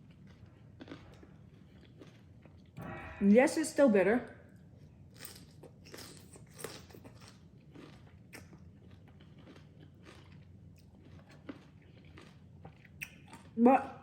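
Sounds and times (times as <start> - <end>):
chewing and crunching food: 0.0 - 2.8, 5.0 - 14.0.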